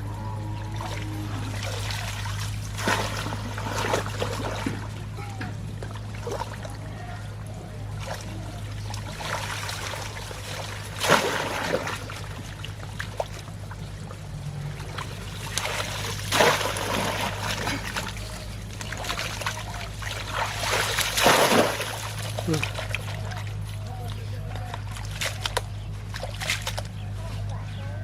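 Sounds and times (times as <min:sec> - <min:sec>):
shallow water splashing and trickling: 0:00.0 - 0:27.8
steady low hum: 0:00.0 - 0:28.0
loud water splashes: 0:00.6 - 0:24.1.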